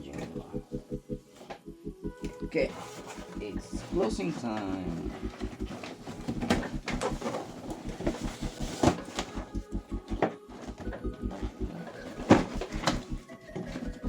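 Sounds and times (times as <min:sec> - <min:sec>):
cardboard box flaps folding: 0:05.1 - 0:09.5, 0:11.9 - 0:13.1.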